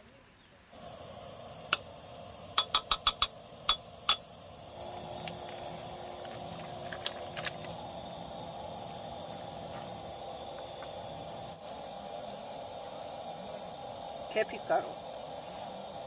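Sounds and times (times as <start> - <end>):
low hiss: 0.0 - 16.0
utensil clinking on cookware: 2.6 - 4.2.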